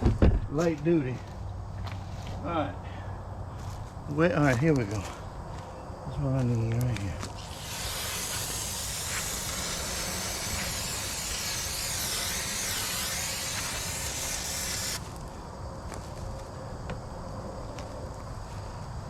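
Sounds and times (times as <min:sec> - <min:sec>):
aerosol spray can hissing: 0:07.3 - 0:15.1.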